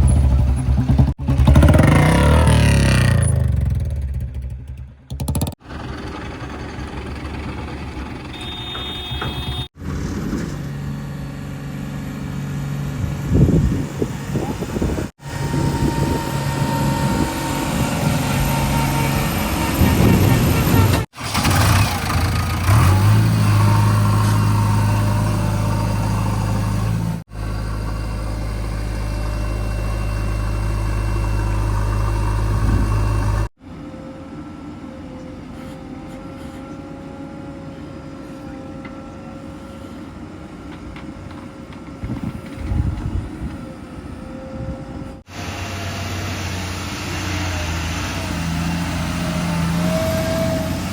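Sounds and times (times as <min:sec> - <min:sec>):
heavy diesel engine running: 0:00.0 - 0:33.5, 0:38.3 - 0:50.9
knocks: 0:08.6 - 0:09.7.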